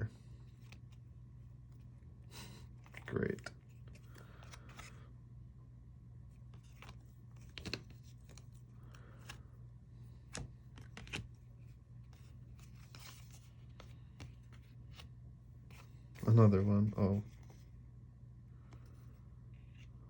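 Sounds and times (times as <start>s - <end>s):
low steady hum: 0.0s - 20.0s
cards tapping and sliding: 6.5s - 9.4s, 10.1s - 15.1s.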